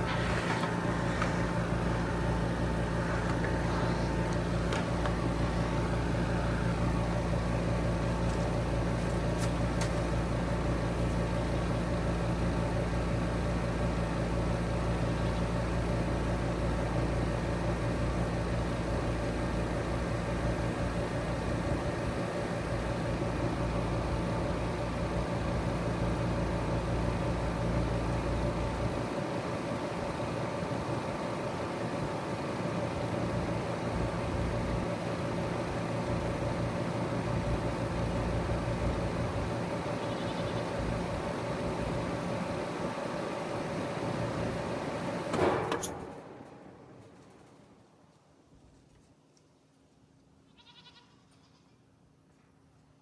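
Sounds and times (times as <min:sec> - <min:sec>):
loud clunk of unit shutting off: 0:00.0 - 0:14.4, 0:40.5 - 0:47.9
heat pump unit humming: 0:00.0 - 0:49.3
fan coasting to a stop: 0:00.0 - 0:50.3.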